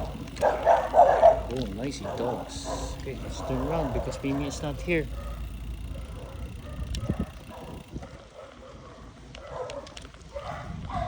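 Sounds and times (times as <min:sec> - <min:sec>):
bicycle road rumble: 0:00.0 - 0:11.0
dogs barking: 0:00.0 - 0:11.0
wind on microphone: 0:05.4 - 0:08.3, 0:10.2 - 0:11.0.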